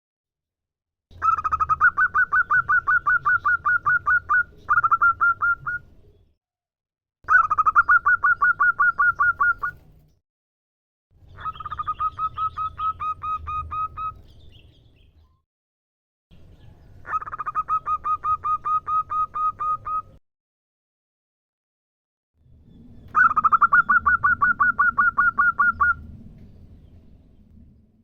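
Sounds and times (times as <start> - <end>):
dove staccato cooing: 1.2 - 5.8.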